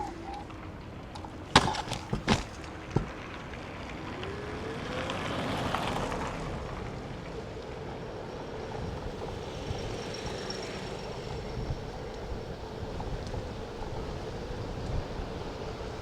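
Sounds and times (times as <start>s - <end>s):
city street noise: 0.0s - 16.0s
sharp knocks: 1.5s - 3.2s
vehicle passing: 3.1s - 12.8s.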